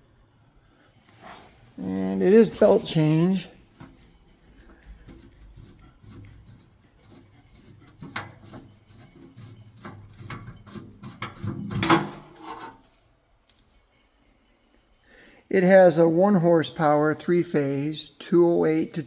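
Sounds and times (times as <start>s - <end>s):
rubbing and scraping: 1.0s - 17.7s
clicks and knocks on metal lathe: 7.9s - 12.8s.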